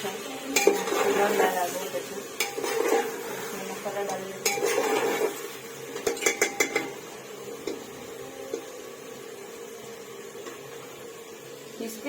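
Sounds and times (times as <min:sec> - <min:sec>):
metal spoon scraping a pot: 0:00.6 - 0:01.6, 0:02.4 - 0:03.7, 0:04.4 - 0:07.0.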